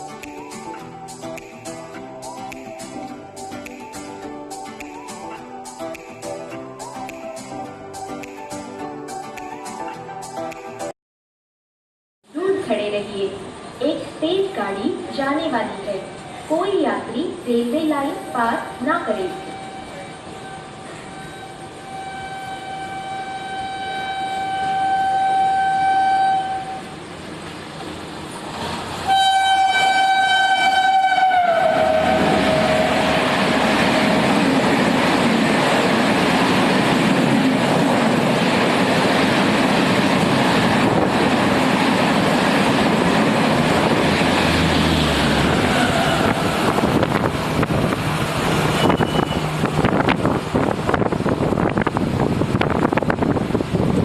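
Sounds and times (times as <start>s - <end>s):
train coaches rushing past: 13.4s - 54.0s
locomotive horn blasts: 18.2s - 26.9s, 29.1s - 34.4s, 48.7s - 49.6s.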